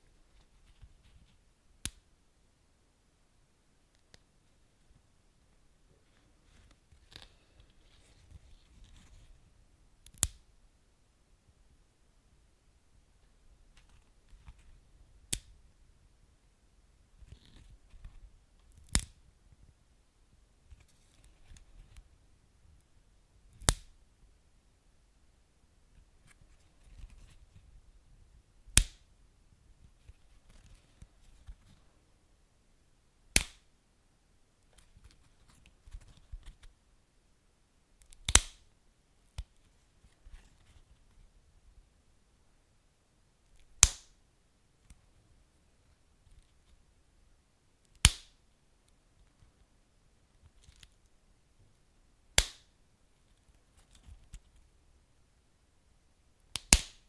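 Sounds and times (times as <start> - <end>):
sharp pops from fire: 38.3 - 38.6, 43.8 - 44.1, 48.0 - 48.3, 52.4 - 52.6, 56.5 - 57.0.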